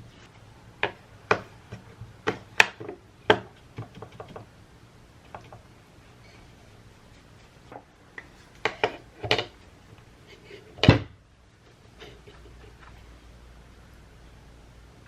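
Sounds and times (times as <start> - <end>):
hard objects knocking and clattering: 0.8 - 4.5, 10.8 - 11.2.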